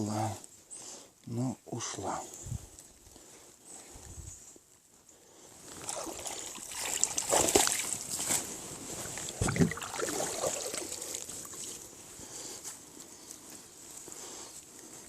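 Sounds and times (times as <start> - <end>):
water splashing around boat: 5.8 - 8.2, 9.1 - 11.7.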